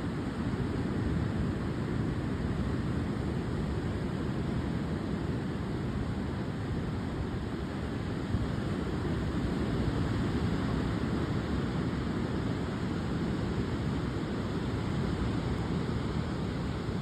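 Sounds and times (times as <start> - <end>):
heavy surf: 7.0 - 17.0.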